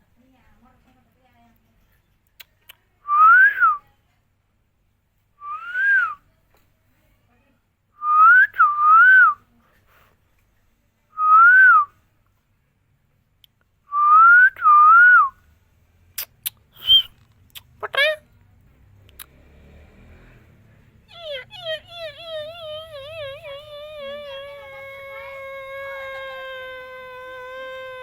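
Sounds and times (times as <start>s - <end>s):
parrot whistling: 16.8s - 17.1s.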